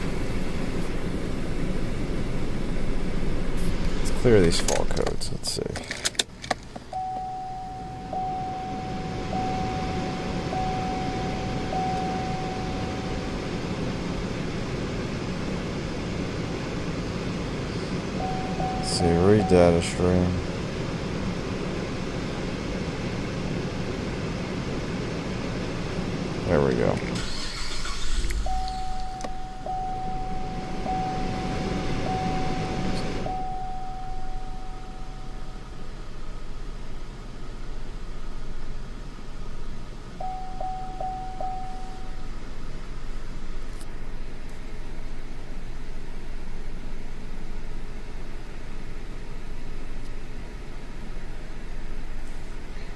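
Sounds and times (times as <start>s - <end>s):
rough idling car engine: 0.0s - 52.9s
chime tone: 7.0s - 13.4s, 18.2s - 20.0s, 28.4s - 35.5s, 40.2s - 42.3s.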